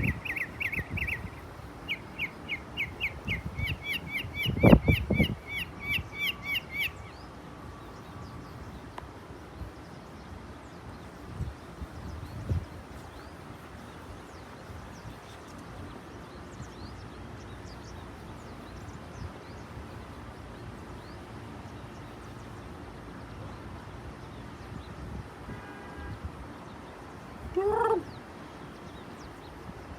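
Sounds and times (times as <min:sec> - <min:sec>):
faint high bird chirps: 0:00.0 - 0:08.9.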